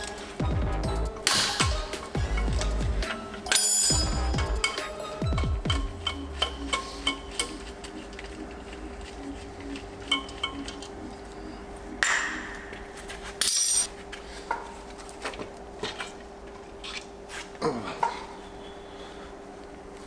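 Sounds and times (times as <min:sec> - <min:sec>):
metal tools clinking: 0:01.1 - 0:11.0, 0:13.4 - 0:13.9.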